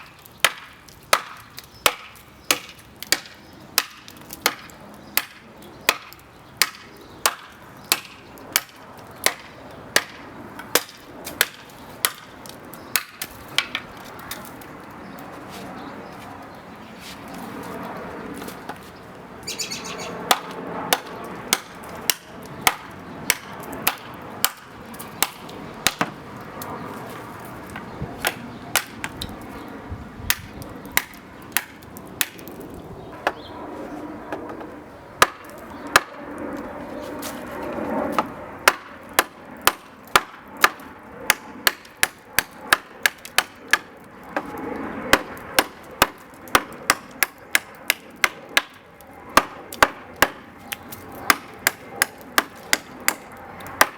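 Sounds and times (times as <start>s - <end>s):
knife chopping into wood: 20.3s - 26.2s, 49.4s - 50.4s, 51.3s - 53.9s.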